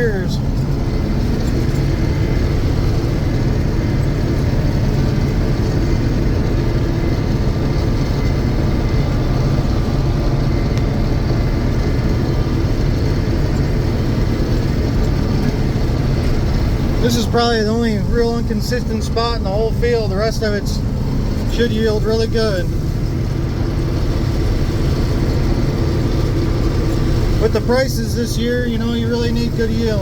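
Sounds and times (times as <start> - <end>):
combine harvester running: 0.0 - 30.0.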